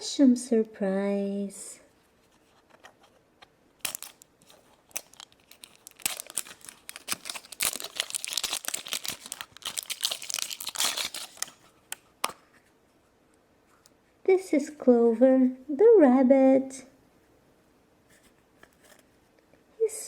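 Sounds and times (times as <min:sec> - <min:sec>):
plastic wrapper crinkling: 0:03.8 - 0:12.4.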